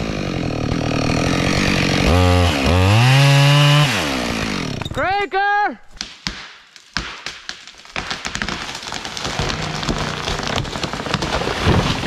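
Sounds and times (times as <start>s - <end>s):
wood cracking and snapping: 6.0s - 12.0s.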